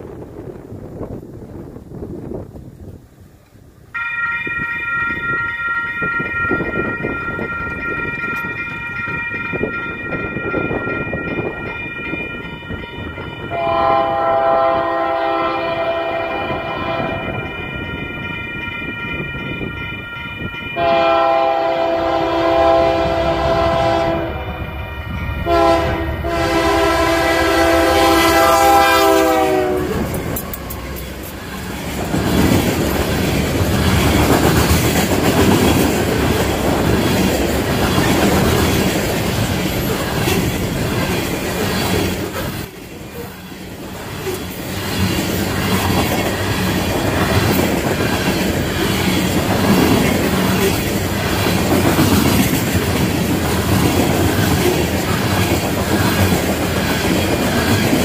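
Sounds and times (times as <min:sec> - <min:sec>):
train rumble and wheel clatter: 0:00.0 - 0:58.0
locomotive horn blasts: 0:13.5 - 0:17.4, 0:20.8 - 0:24.7, 0:25.4 - 0:31.0.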